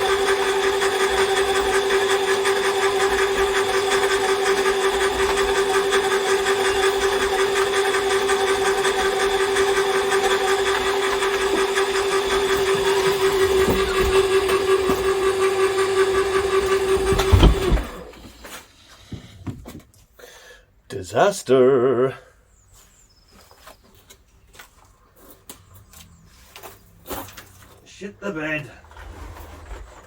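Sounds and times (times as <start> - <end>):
cable-stripping machine humming: 0.0 - 18.4
low knocks: 16.1 - 18.0.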